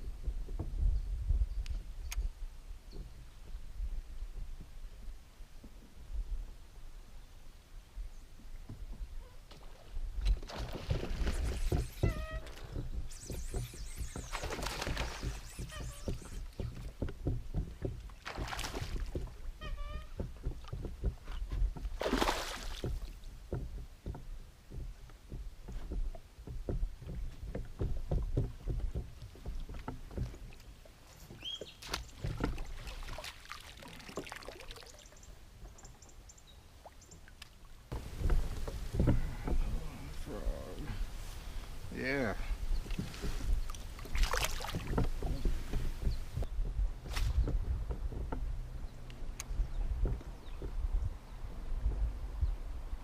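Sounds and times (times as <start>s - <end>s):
knocks and clicks against hull: 0.0s - 2.3s, 8.4s - 36.2s, 37.1s - 52.6s
water swishes: 3.0s - 53.0s
bird chirping: 11.4s - 16.8s, 31.1s - 32.2s.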